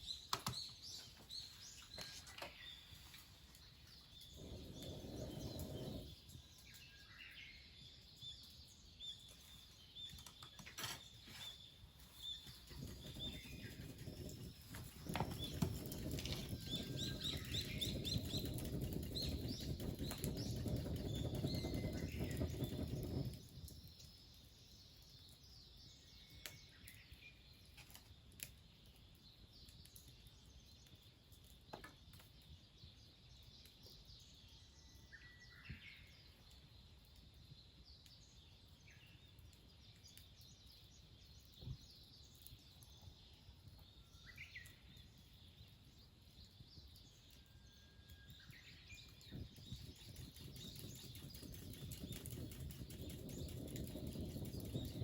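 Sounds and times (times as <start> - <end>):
birds chirping: 0.0 - 24.4, 48.4 - 55.0.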